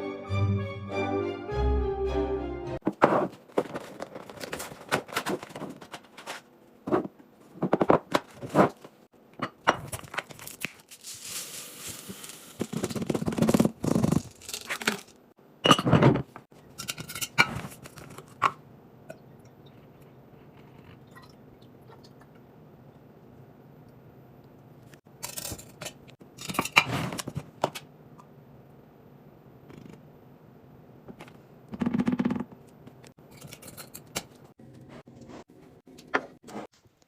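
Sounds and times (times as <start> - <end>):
packaging rustling: 3.4 - 6.5
scrape: 34.9 - 35.6.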